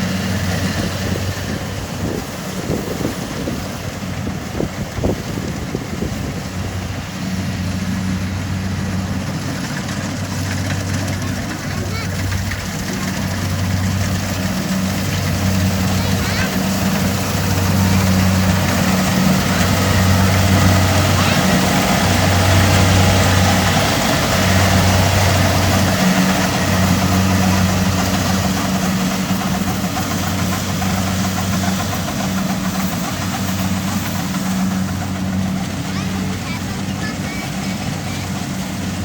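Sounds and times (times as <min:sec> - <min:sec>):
combine harvester diesel engine hum: 0:00.0 - 0:39.0
machinery clatter and rush: 0:00.0 - 0:39.0.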